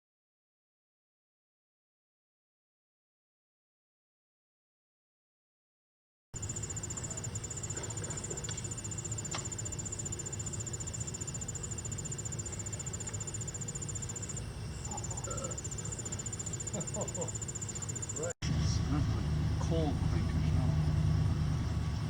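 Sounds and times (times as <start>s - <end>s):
insect pulsed trill: 6.4s - 22.0s.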